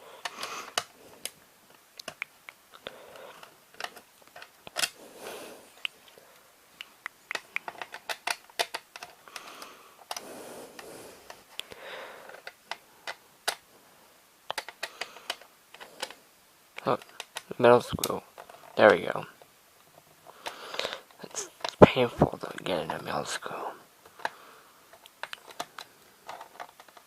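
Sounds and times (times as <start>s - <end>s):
plastic cassette clicks and taps: 0.2s - 1.4s, 2.0s - 5.0s, 6.9s - 10.2s, 12.4s - 13.6s, 14.5s - 16.2s, 16.9s - 19.0s, 24.0s - 27.0s.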